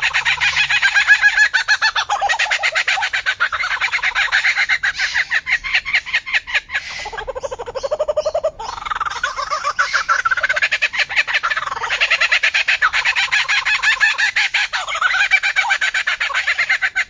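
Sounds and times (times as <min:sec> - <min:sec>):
bird calling rapid notes: 0:00.0 - 0:17.0.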